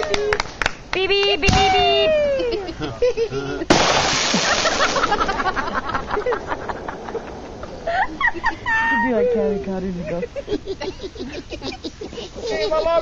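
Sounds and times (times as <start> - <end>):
firework shell bang: 3.7 - 8.2.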